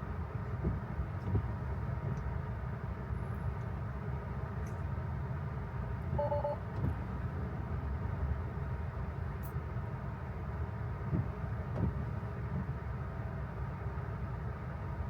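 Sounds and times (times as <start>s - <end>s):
road and tyre rumble: 0.0s - 15.0s
two-tone electronic chime: 6.2s - 6.6s.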